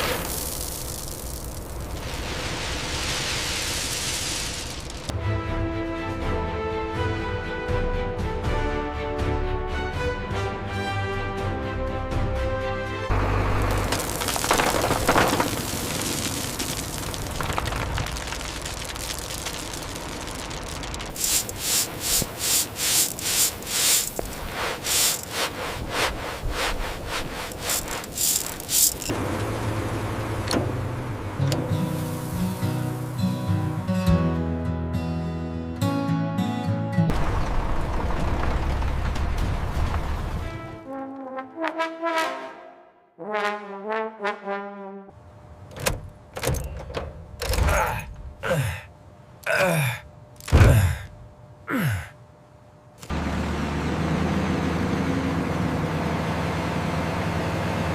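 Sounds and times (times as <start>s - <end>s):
steady hiss: 0.0s - 5.1s, 16.1s - 29.1s, 31.7s - 33.8s
music: 5.1s - 13.1s, 30.8s - 37.1s, 40.4s - 45.1s
trombone-like brass tune: 40.6s - 45.2s.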